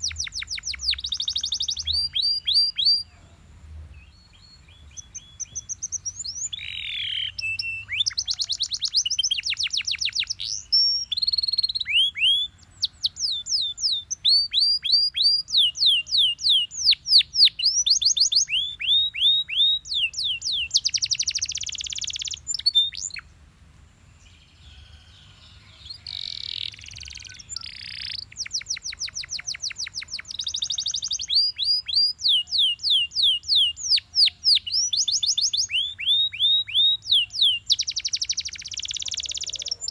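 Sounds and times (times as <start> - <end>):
canary singing trills: 0.0 - 23.3, 24.2 - 39.9.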